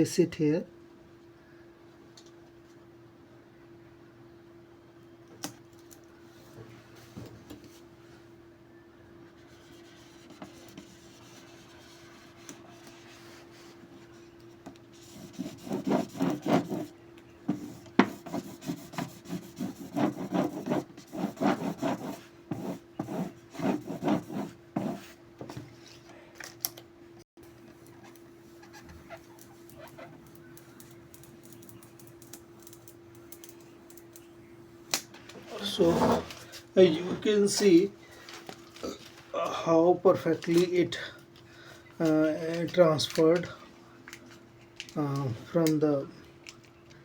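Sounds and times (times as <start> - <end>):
squeegee rubbing strokes: 17.6 - 25.2
steady low hum: 27.0 - 47.0.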